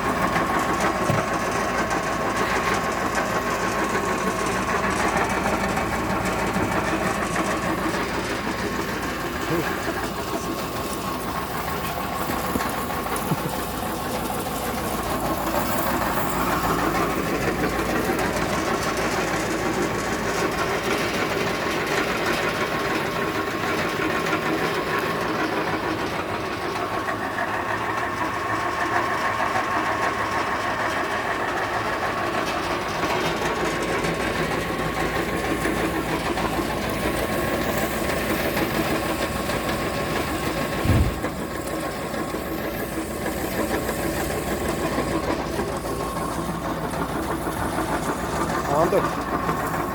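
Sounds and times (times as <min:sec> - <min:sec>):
thin high hum: 0:40.8 - 0:41.3.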